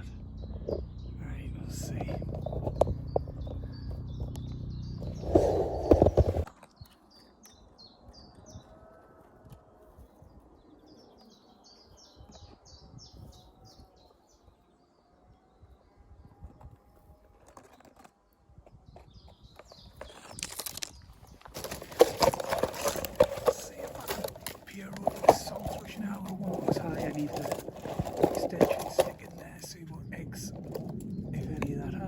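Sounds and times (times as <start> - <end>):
songbird singing: 0.0 - 32.0
rustle of vegetation: 20.0 - 29.8.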